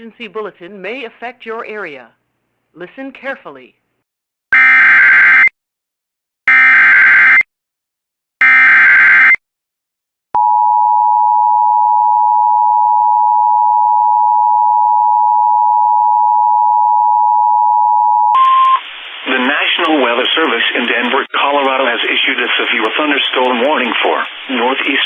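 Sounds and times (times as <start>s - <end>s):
long steady attention tone: 10.4s - 21.0s.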